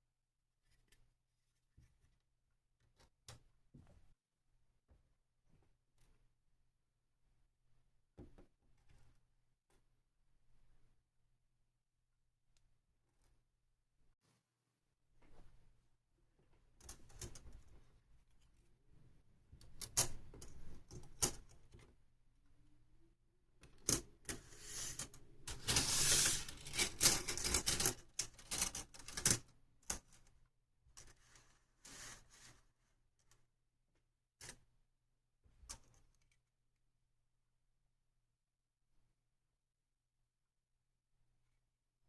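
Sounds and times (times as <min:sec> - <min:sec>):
plastic parts clicking and rattling: 0:23.6 - 0:30.4.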